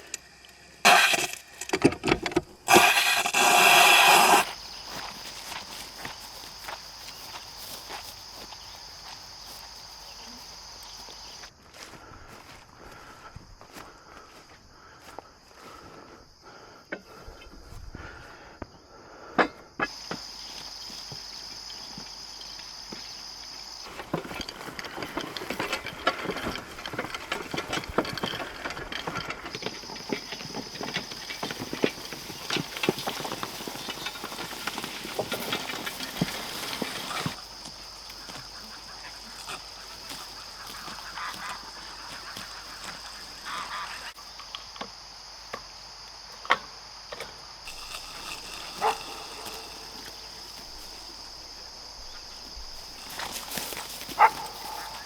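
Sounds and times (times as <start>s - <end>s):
rustling and clicking: 23.8s - 44.1s, 47.7s - 51.6s, 52.8s - 55.0s
ducks and geese calling: 30.2s - 44.2s.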